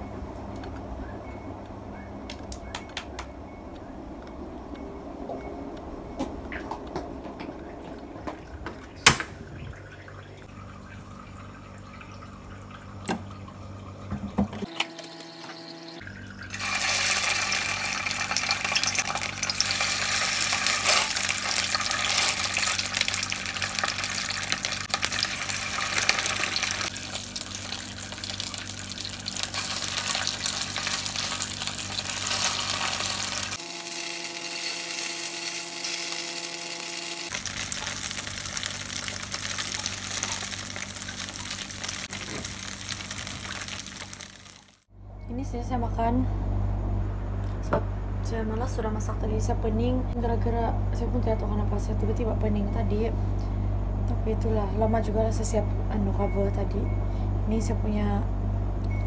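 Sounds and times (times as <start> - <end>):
low hum: 0.0 - 59.0
food sizzling in hot oil: 16.1 - 44.9.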